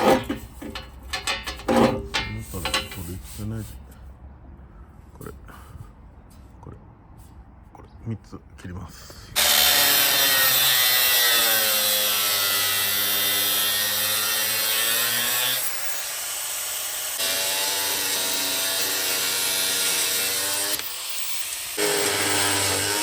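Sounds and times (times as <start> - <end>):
power tool cutting screws: 9.4 - 23.0.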